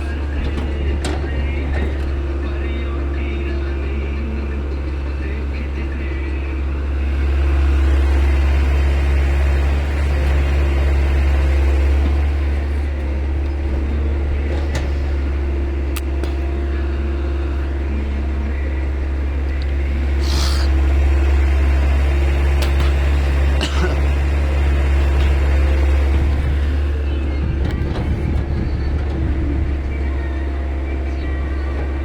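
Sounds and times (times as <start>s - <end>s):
diesel engine running: 0.0s - 32.0s
short hiss: 20.2s - 20.8s.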